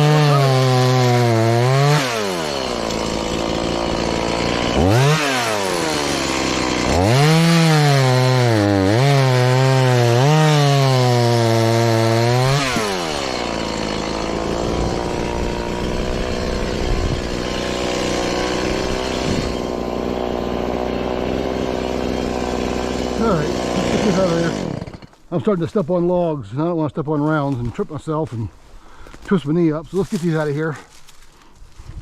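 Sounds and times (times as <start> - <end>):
chainsaw cutting wood: 0.0 - 25.3.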